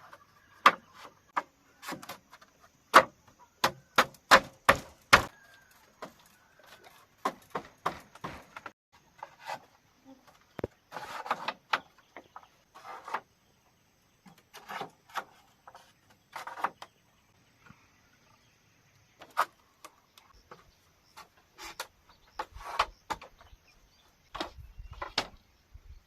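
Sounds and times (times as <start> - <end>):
sharp knocks and cracks: 0.6 - 5.4, 6.0 - 8.8, 24.3 - 25.4.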